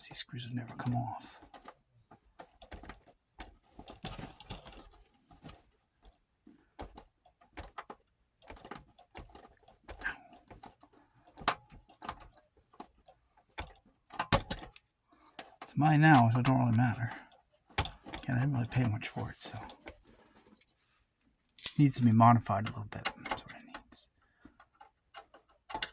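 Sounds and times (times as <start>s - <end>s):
screwdriver clicking and scraping: 21.6s - 22.2s.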